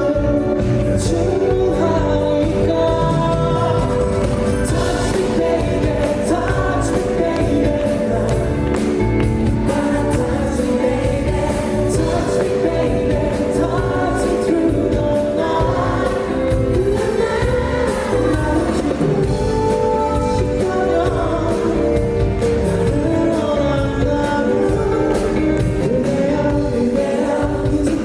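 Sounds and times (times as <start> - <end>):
live band playing pop-rock: 0.0 - 28.0
person singing: 0.0 - 28.0.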